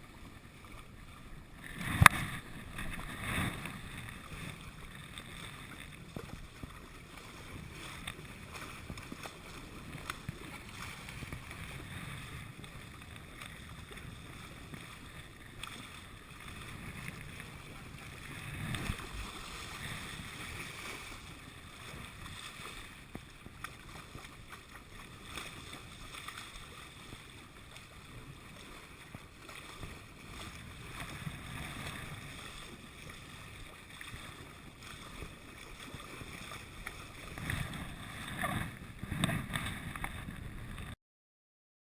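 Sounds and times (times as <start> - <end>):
water washing along boat hull: 0.0 - 41.0
wind on microphone: 0.9 - 24.8, 29.0 - 41.0.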